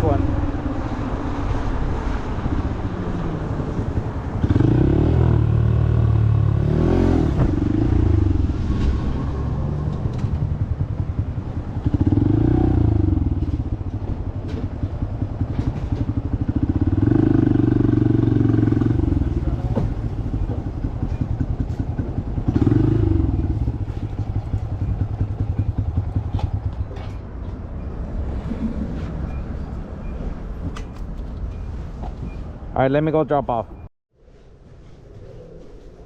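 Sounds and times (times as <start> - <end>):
motorcycle engine: 0.0 - 27.0.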